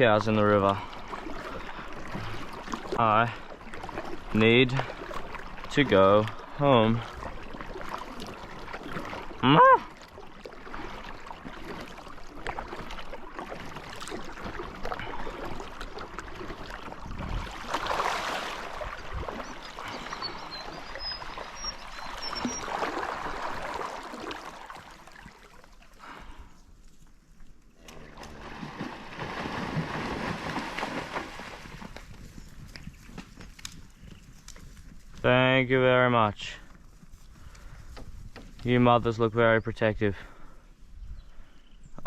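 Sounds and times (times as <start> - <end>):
water sloshing and trickling: 0.0 - 35.2
high bird chirps: 19.4 - 22.7.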